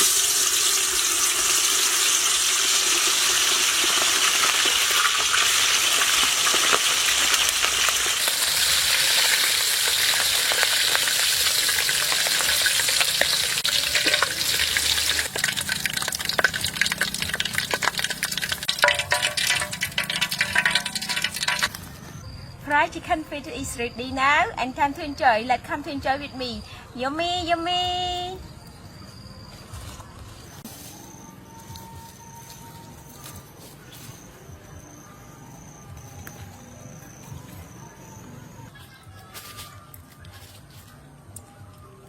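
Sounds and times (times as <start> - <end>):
food frying in hot oil: 0.0 - 22.1.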